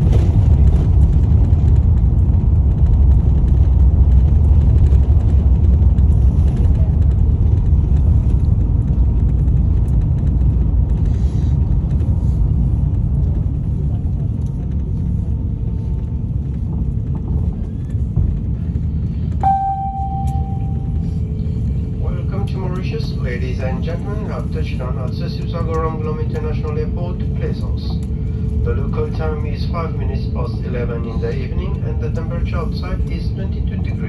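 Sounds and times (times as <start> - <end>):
airliner cabin roar: 0.0 - 34.0
cabin chime: 19.4 - 21.0.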